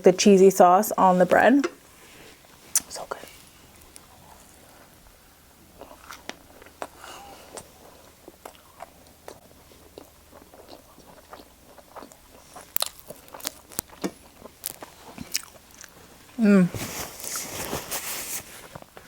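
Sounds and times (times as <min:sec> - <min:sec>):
person chewing food: 0:05.6 - 0:16.2.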